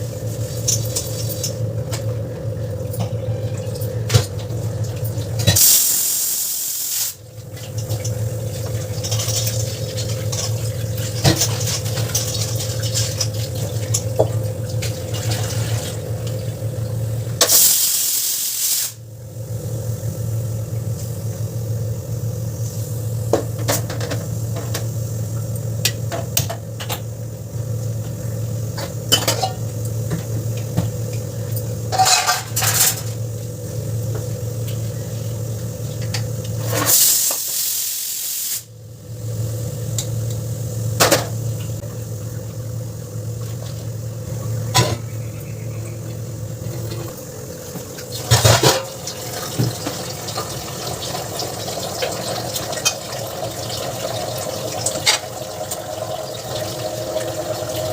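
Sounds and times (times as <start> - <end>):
steady low hum: 0.0 - 18.2, 19.0 - 37.0, 38.6 - 57.9
utensils and dishes clinking: 31.9 - 33.1.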